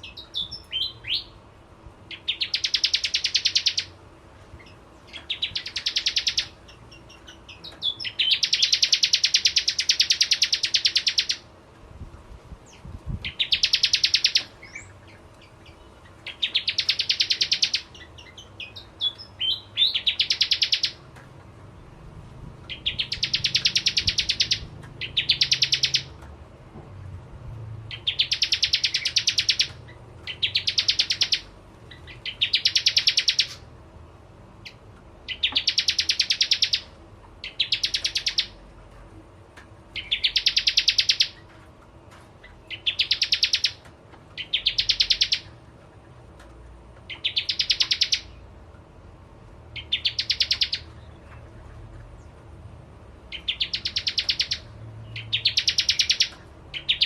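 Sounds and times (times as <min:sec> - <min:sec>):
bird rattling trills: 0:22.6 - 0:26.2.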